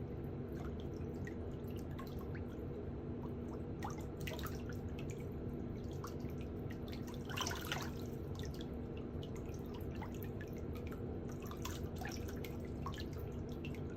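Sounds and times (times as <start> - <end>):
water drips: 0.5 - 13.9.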